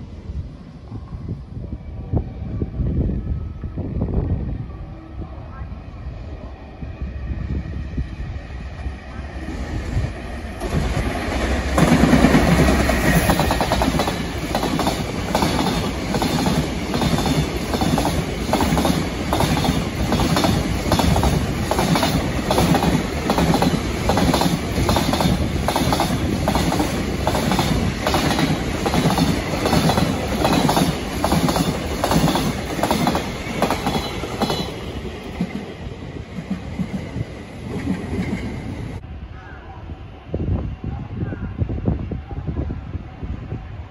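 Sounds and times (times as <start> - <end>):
locomotive passing: 7.8 - 39.0.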